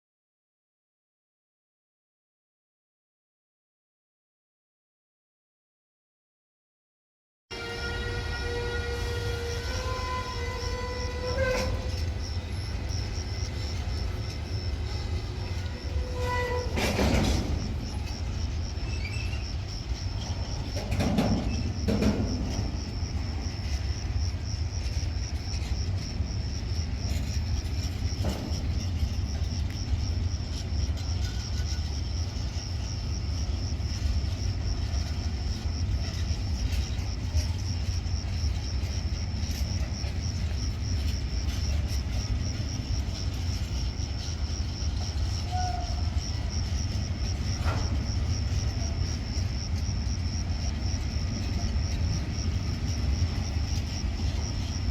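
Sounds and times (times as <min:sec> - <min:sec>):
train horn: 0:07.5 - 0:12.7, 0:14.0 - 0:18.2, 0:45.2 - 0:46.5
train rumbling: 0:07.5 - 0:54.9
wheels knocking on track: 0:09.9 - 0:54.9.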